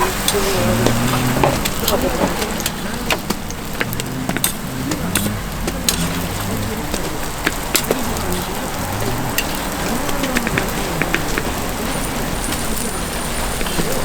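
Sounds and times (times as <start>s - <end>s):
faint voices: 0.0s - 14.0s
food sizzling on griddle: 9.4s - 14.0s.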